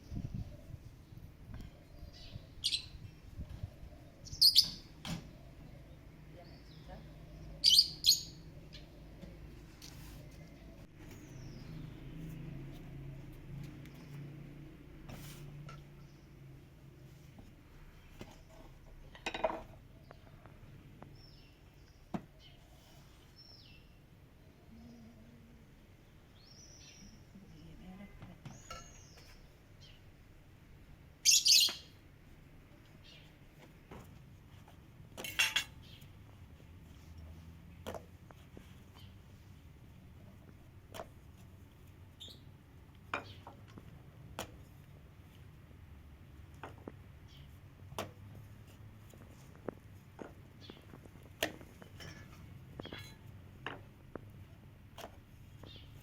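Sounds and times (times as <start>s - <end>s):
bird calling: 31.2s - 31.9s
sharp knocks and clinks: 35.2s - 35.8s.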